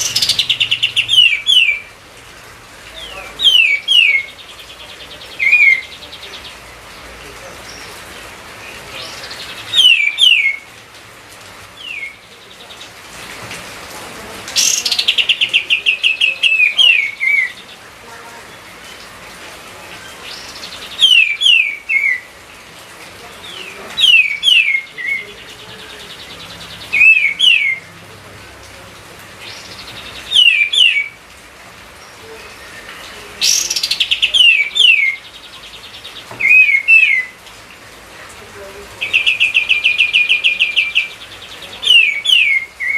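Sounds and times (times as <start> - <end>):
songbird whistling: 9.7 - 10.6, 11.8 - 12.2, 27.0 - 27.8, 29.5 - 31.2, 36.4 - 37.4.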